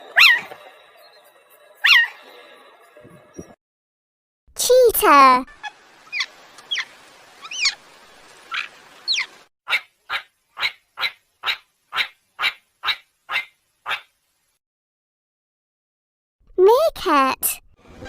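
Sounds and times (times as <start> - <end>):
cheetah chirping: 5.5 - 7.8, 8.5 - 14.1.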